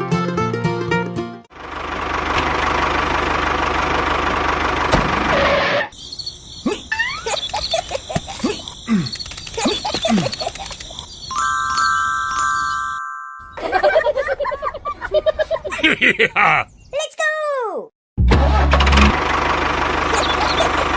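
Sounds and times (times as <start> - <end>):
small engine running roughly: 1.5 - 5.6, 18.7 - 20.9.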